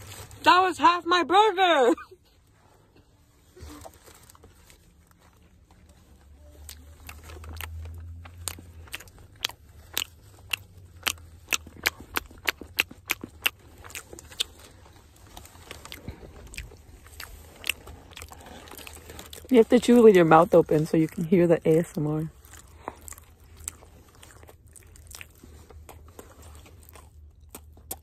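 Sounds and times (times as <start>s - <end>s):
open-mouth chewing smacks: 6.6s - 19.5s, 22.3s - 28.0s.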